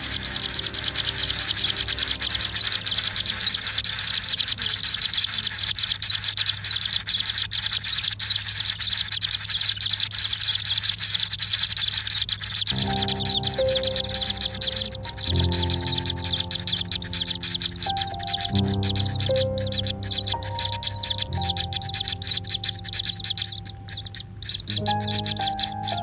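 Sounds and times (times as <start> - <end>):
insect chorus chirring: 0.0 - 8.0, 8.6 - 26.0.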